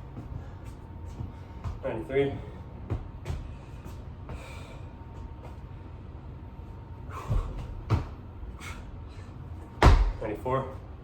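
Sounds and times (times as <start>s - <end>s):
body thumping on floor: 9.8s - 10.2s.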